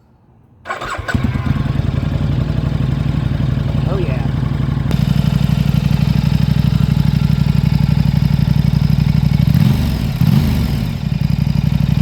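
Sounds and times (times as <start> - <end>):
motorcycle engine idling: 0.7 - 12.0.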